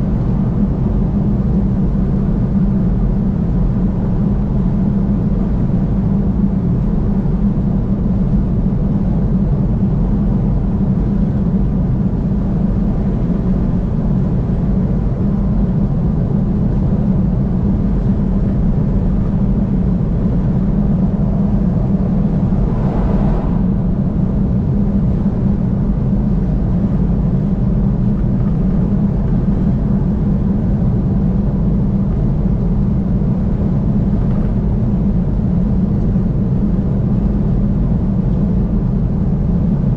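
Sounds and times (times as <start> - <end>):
car driving at highway speed: 8.0 - 30.4.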